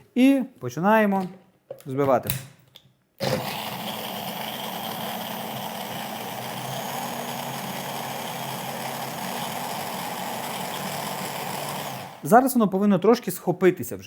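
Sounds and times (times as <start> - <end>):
electric blender running: 3.2 - 12.3.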